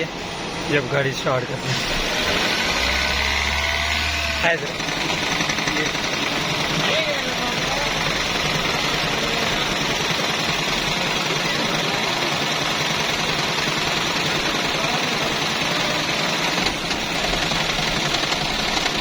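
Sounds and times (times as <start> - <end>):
car engine rattling knock: 4.7 - 19.0.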